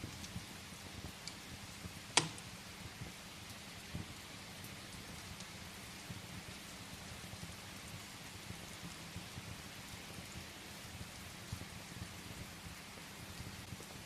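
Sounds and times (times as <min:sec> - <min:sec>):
steady rain: 0:00.0 - 0:14.0
wood fire crackling: 0:00.0 - 0:14.0
sharp loud fire pop: 0:02.2 - 0:02.5.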